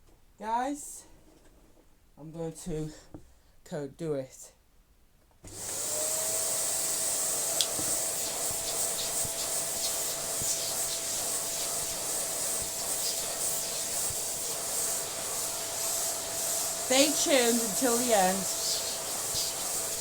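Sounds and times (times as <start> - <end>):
vacuum cleaner running: 5.5 - 20.0
light clicks of sucked dust: 7.6 - 7.8.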